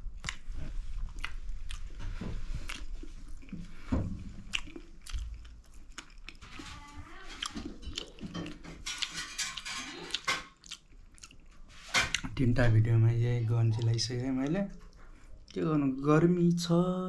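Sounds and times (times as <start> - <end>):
chewing food: 0.0 - 12.3
wet mouth clicks and smacks: 4.4 - 6.4.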